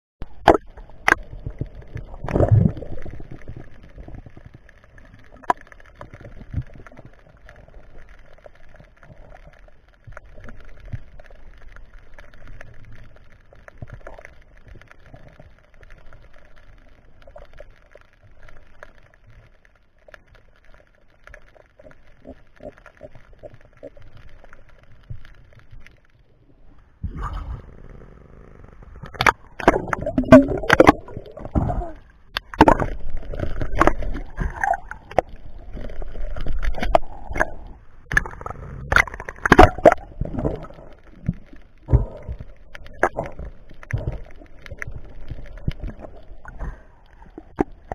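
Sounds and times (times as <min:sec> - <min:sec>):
sharp knocks underwater: 0:00.2 - 0:03.3, 0:29.1 - 0:46.7
small clicks and gurgles: 0:00.2 - 0:47.9
underwater watery wash: 0:00.2 - 0:47.9.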